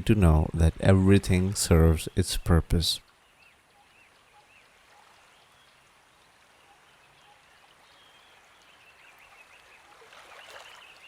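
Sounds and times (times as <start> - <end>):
small birds chirping: 3.0 - 11.0.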